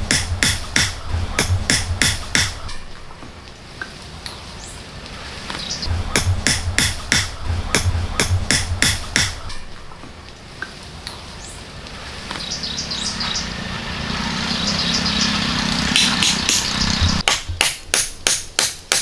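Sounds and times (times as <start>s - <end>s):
rhythmic hammer-like knocks: 0.0s - 2.9s, 5.9s - 9.7s, 15.9s - 19.0s
low steady drone: 0.0s - 3.1s, 5.9s - 10.0s
high bird chirps: 12.4s - 17.2s.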